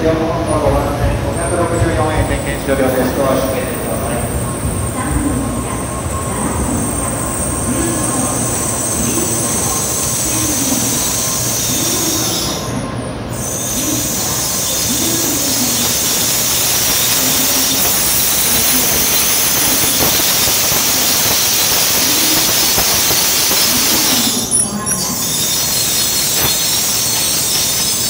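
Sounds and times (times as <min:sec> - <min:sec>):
train rolling and slowing: 0:00.0 - 0:28.0
high hiss: 0:13.4 - 0:24.5.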